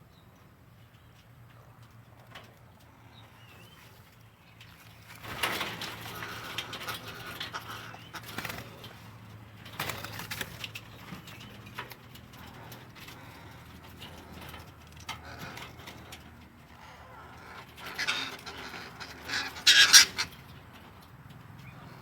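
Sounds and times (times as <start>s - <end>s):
parrots fluttering in cage: 5.0s - 13.1s, 16.8s - 20.5s.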